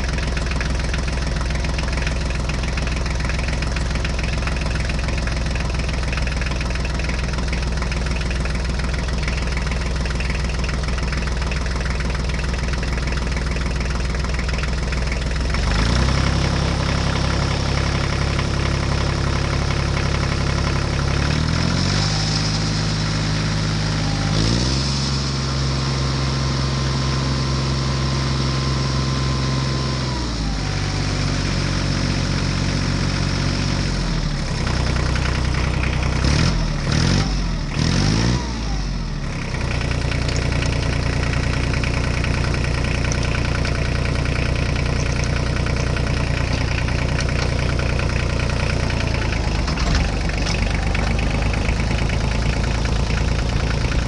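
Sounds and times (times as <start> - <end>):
engine idling and revving: 0.0 - 54.0.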